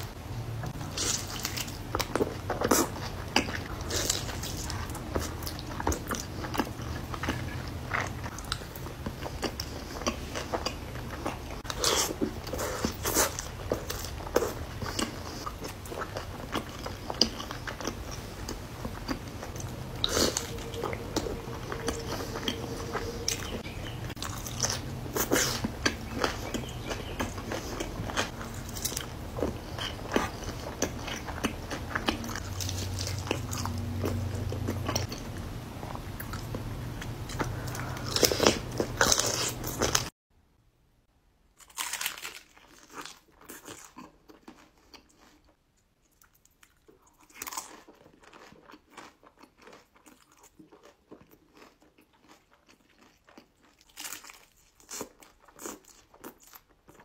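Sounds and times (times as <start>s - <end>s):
chewing and mouth clicks: 0.7s - 40.1s, 42.9s - 57.0s
crunching into taco shell: 41.6s - 45.5s, 46.1s - 57.0s.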